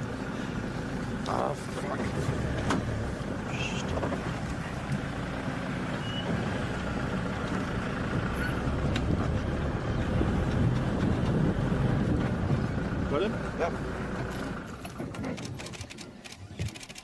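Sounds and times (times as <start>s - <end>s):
vehicle engine running: 0.0s - 16.8s.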